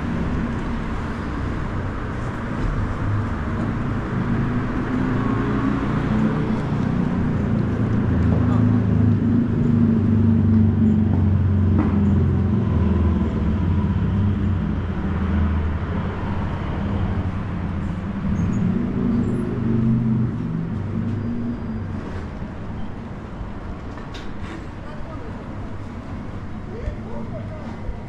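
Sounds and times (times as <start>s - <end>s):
street noise: 0.0s - 28.0s.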